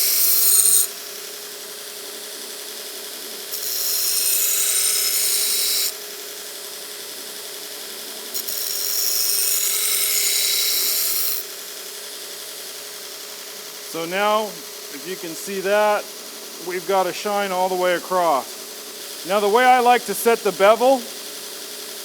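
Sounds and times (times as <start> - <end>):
belt grinder running: 0.0 - 1.3, 3.5 - 22.0
blade grinding hiss: 13.8 - 22.0.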